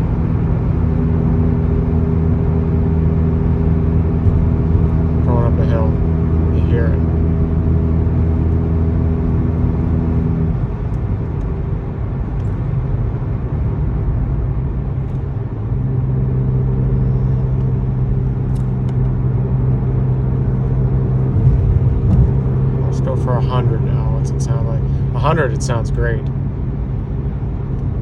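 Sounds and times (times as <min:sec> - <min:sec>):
car exhaust drone: 0:00.0 - 0:28.0
tyre and road noise: 0:00.0 - 0:28.0.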